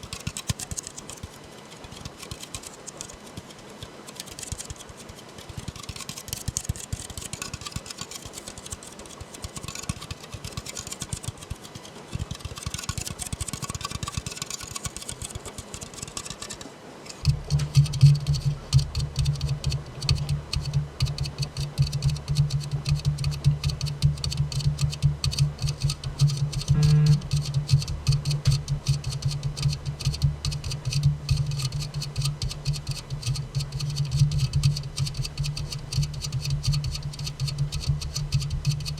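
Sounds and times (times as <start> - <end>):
finger tapping on a soda can: 17.2 - 38.9.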